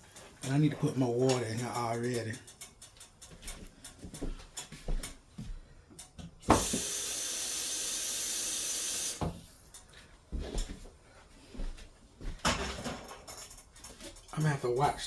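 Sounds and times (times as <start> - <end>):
kitchen faucet running: 6.4 - 9.4.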